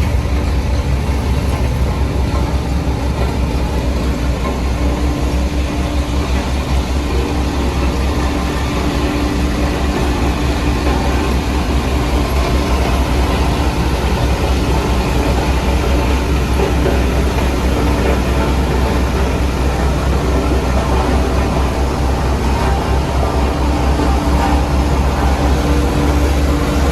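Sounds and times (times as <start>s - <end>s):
diesel machinery rumbling: 0.0s - 26.9s.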